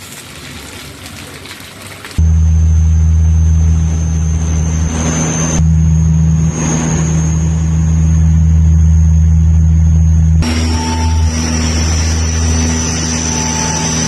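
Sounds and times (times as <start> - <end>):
engine low drone: 2.2 - 14.0
thin high whine: 2.2 - 14.0.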